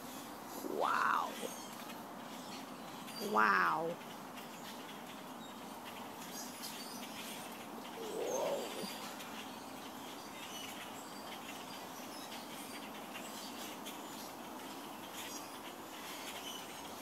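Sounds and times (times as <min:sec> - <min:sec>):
blackbirds chirping: 0:00.0 - 0:17.0
low bird call: 0:00.6 - 0:01.7, 0:03.2 - 0:04.0, 0:07.9 - 0:09.1.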